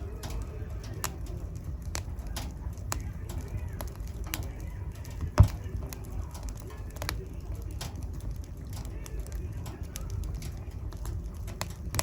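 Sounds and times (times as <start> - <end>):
wood fire crackling: 0.0 - 12.0
loud fire pop: 5.2 - 5.8.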